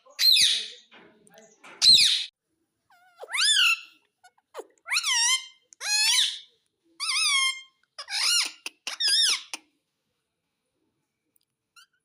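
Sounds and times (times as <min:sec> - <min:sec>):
parrot calling: 0:02.9 - 0:09.6.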